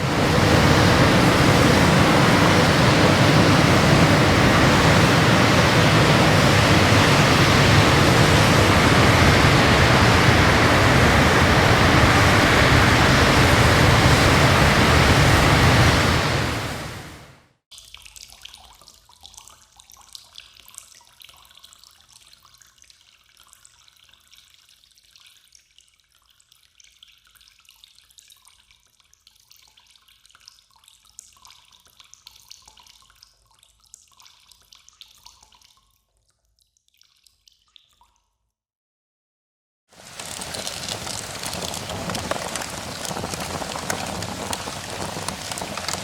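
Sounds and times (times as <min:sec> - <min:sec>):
small water splashes: 0:40.0 - 0:46.0
water running and dripping: 0:40.0 - 0:46.0.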